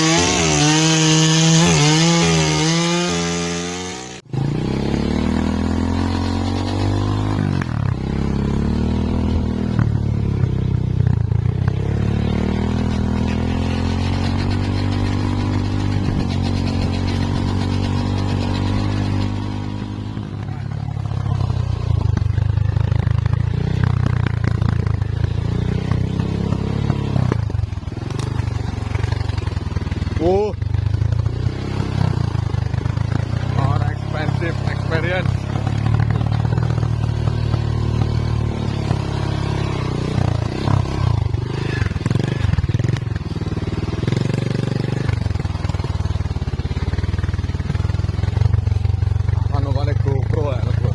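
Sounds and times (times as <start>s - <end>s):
chainsaw cutting wood: 0.0s - 7.6s, 12.2s - 20.0s.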